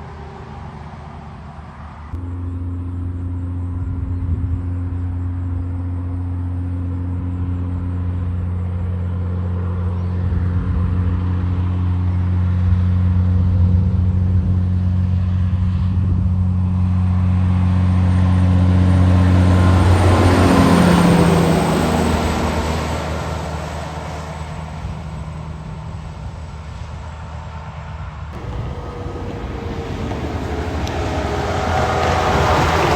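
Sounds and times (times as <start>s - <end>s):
heavy truck engine drone: 0.0s - 32.9s
tyre noise rushing by: 28.4s - 32.9s.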